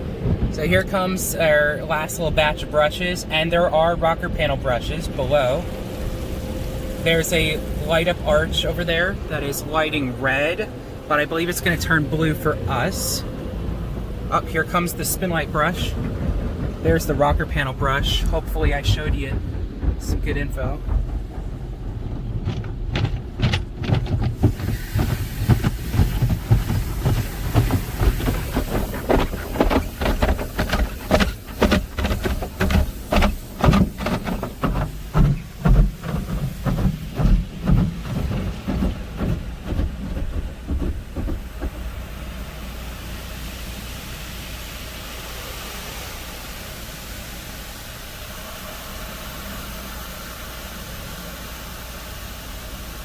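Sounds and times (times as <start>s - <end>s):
low rumble: 0.0s - 43.0s
steady hiss: 0.5s - 19.4s, 24.4s - 53.0s
car wash brushes thumping: 6.9s - 43.0s.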